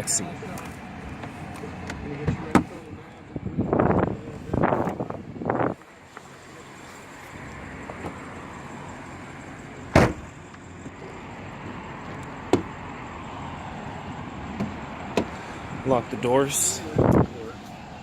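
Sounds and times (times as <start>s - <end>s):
car door shutting: 9.9s - 10.3s.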